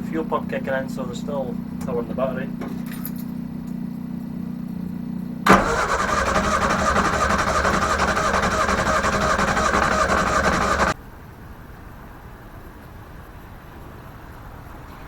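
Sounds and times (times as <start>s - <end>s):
steady low hum: 0.0s - 11.0s
car engine cranking on starter: 5.4s - 11.0s.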